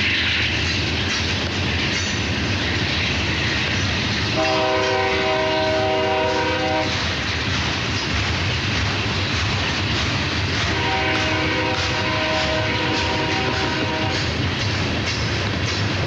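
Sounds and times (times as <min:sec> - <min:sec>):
diesel locomotive engines rumbling: 0:00.0 - 0:16.0
locomotive air horn chord: 0:04.4 - 0:06.9, 0:10.7 - 0:14.2.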